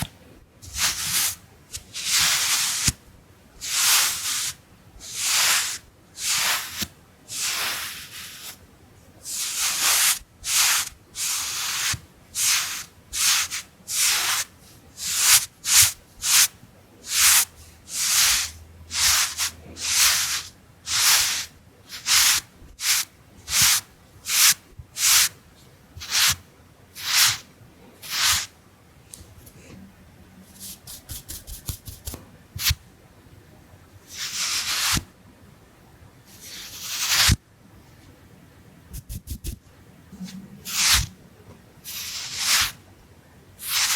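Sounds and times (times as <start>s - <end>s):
brush swishing across microphone: 30.4s - 32.8s, 38.9s - 39.6s, 40.6s - 41.1s
light brush flicks: 30.6s - 32.8s.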